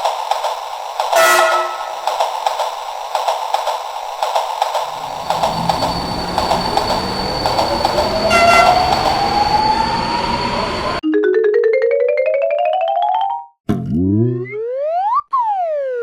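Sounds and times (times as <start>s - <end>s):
train rail rumble: 0.0s - 11.0s
train horn toot: 1.2s - 2.0s, 8.2s - 9.4s.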